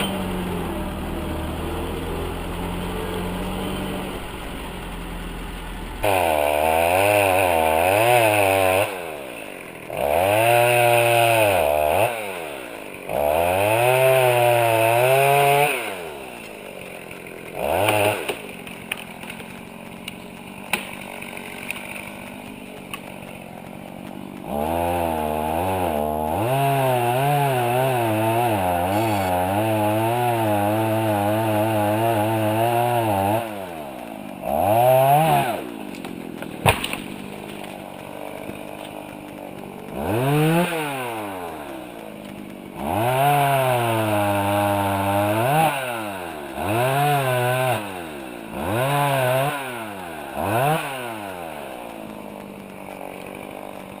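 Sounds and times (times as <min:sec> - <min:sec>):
engine revving under load: 0:00.0 - 0:09.3, 0:09.9 - 0:16.4, 0:17.4 - 0:18.5, 0:24.1 - 0:35.8, 0:39.8 - 0:52.1.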